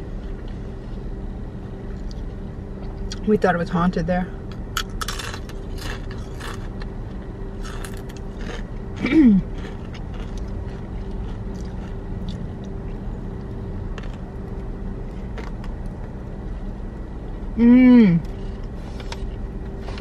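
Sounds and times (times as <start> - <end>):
low hum inside a car: 0.0 - 20.0
crunching and chewing chips: 4.5 - 16.2.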